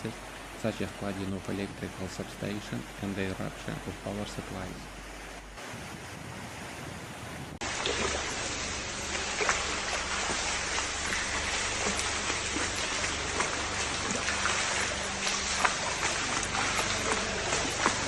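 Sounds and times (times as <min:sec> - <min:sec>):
heavy rain falling: 0:07.6 - 0:18.0.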